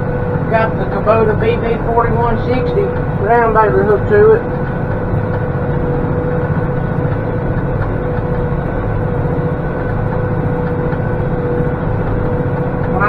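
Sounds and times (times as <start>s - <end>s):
steady machine whine: 0.0s - 13.0s
tractor engine drone: 0.0s - 13.0s.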